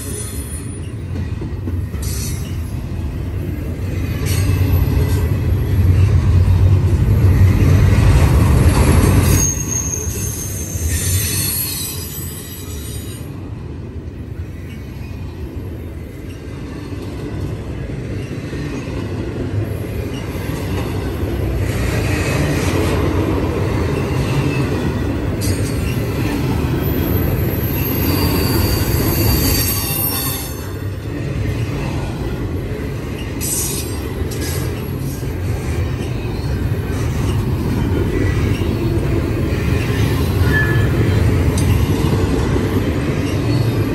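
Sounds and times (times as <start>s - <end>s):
steel wheels rumbling on rail: 0.0s - 43.9s
high-pitched wheel squeal: 9.0s - 13.2s, 27.0s - 30.7s, 40.4s - 41.2s.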